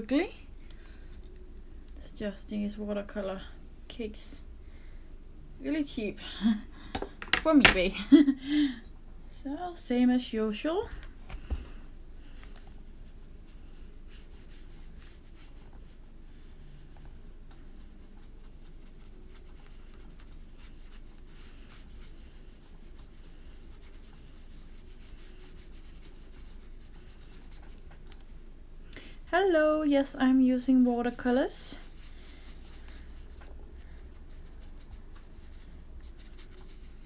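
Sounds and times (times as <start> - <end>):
paintbrush stroking paper: 12.6 - 17.0, 17.6 - 28.2, 29.4 - 37.0.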